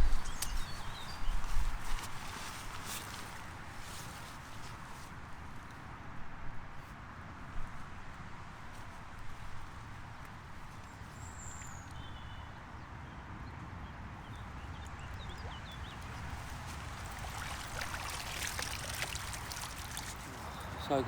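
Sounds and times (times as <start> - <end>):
wind rumble on microphone: 0.0 - 11.8
bird chirps: 14.3 - 16.7
water trickling: 14.7 - 20.8
small clicks and rustles: 16.0 - 20.6.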